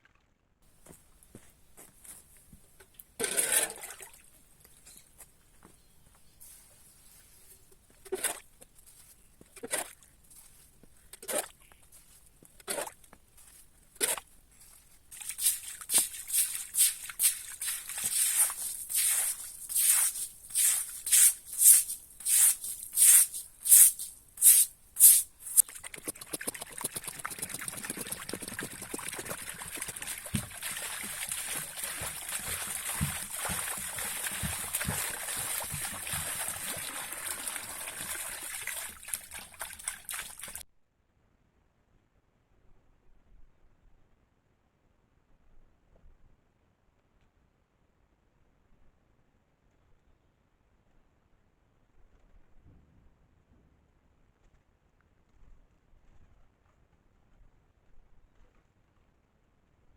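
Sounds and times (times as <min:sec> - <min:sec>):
sharp digging strokes: 0:15.2 - 0:39.3
water trickling: 0:15.2 - 0:40.6.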